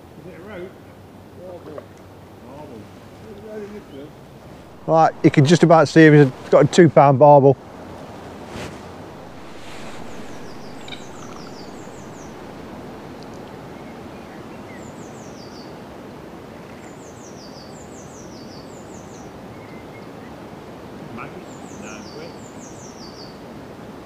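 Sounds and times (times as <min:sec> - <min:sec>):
steady background hiss: 0:00.0 - 0:24.0
songbird singing: 0:03.8 - 0:08.3, 0:08.9 - 0:15.9.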